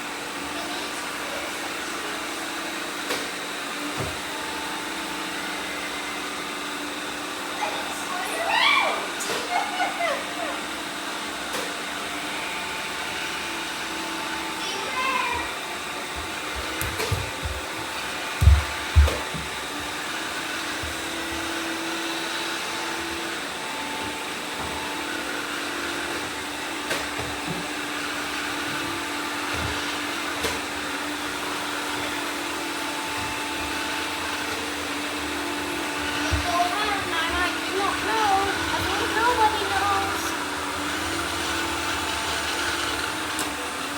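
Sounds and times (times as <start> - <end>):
robot vacuums whirring: 0.0 - 43.9.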